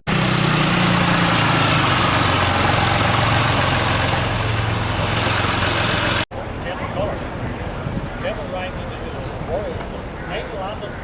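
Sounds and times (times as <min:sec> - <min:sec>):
vehicle engine running: 0:00.1 - 0:06.2.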